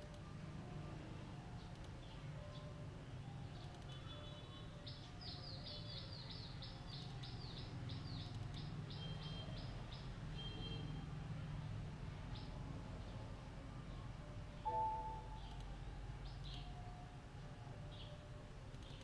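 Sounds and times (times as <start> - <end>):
bird chirping: 3.6 - 10.8, 14.6 - 15.6.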